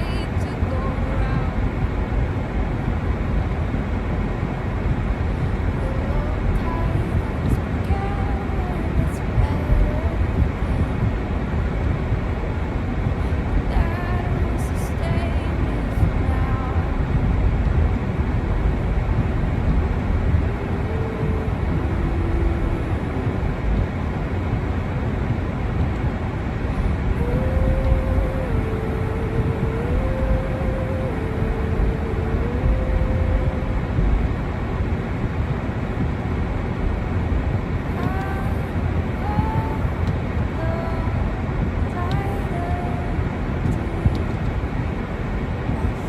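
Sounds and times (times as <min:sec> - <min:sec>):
low outdoor rumble: 0:00.0 - 0:46.0
faint tune of held notes: 0:13.0 - 0:35.2, 0:37.8 - 0:46.0.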